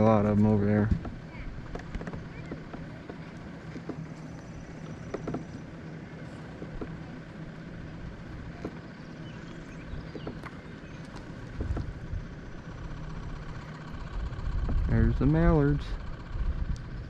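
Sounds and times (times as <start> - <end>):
light clicks and knocks: 0.0 - 7.3, 8.4 - 8.9, 9.9 - 12.2
engine hum: 0.0 - 17.0.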